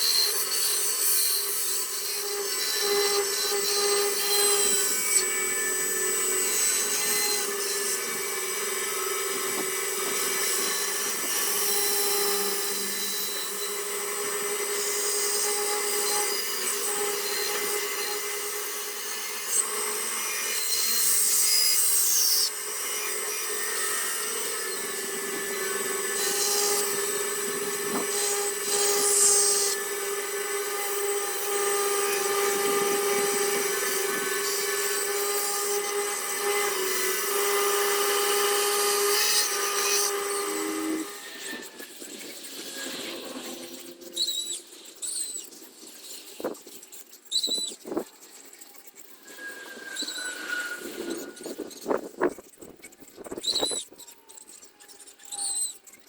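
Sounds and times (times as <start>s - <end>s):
rotary carving tool whining: 0.0s - 56.0s
bit grinding into wood: 19.4s - 45.5s, 47.3s - 54.0s.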